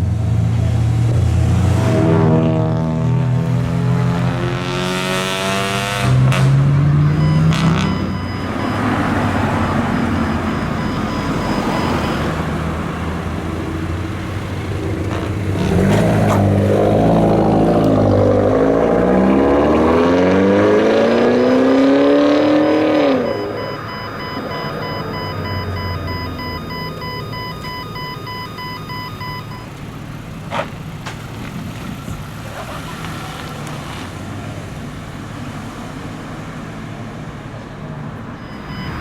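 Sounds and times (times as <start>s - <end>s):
car engine revving: 0.0s - 37.6s
car accelerating: 0.0s - 39.0s
cars driving past: 0.0s - 39.0s.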